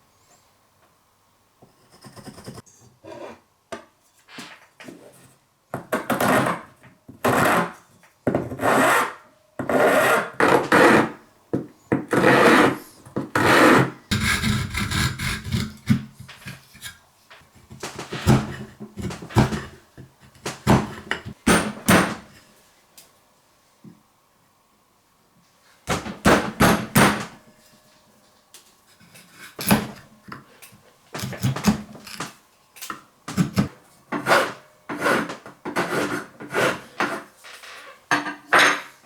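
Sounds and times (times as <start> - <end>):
rasp scraping wood: 12.1 - 12.8, 13.4 - 17.0, 34.2 - 37.3.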